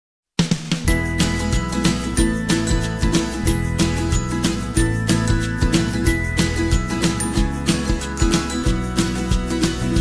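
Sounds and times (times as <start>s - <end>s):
upbeat guitar music with beat: 0.5s - 10.0s.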